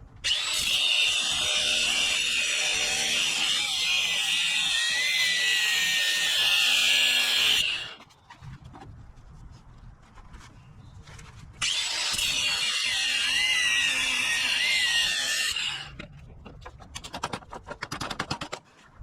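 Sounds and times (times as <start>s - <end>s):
power tool whining: 0.2s - 8.0s, 11.6s - 15.9s.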